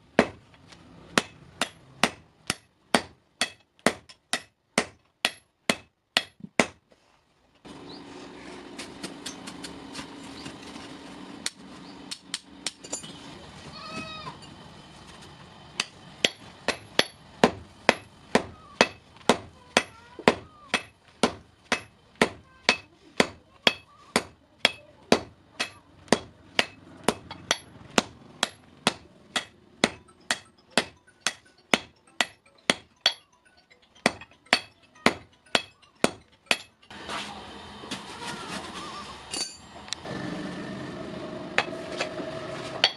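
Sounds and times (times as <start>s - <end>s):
hammer striking steel on anvil: 1.2s - 6.8s, 15.8s - 37.2s, 39.3s - 39.8s, 41.6s - 42.1s.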